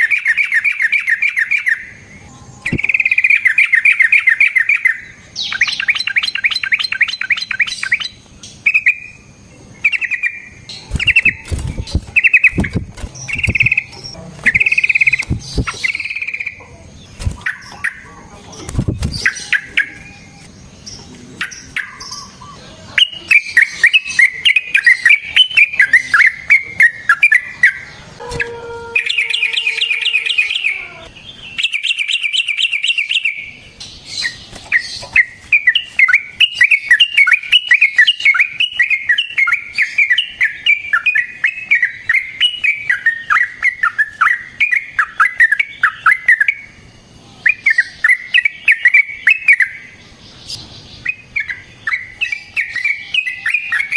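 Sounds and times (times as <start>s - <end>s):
bulbul singing bubbly chattering: 0.0s - 28.1s.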